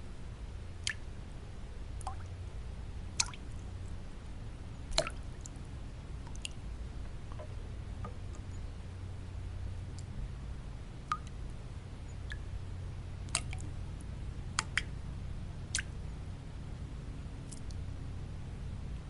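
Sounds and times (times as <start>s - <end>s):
low white-noise rumble: 0.0s - 19.0s
water drops plinking: 4.9s - 5.2s, 13.3s - 13.6s.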